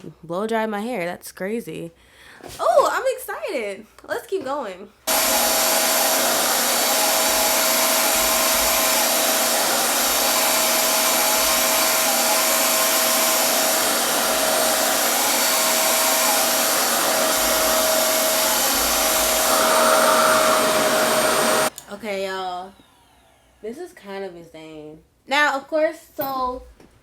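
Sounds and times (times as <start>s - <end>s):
blow dryer rushing air: 5.1s - 23.8s.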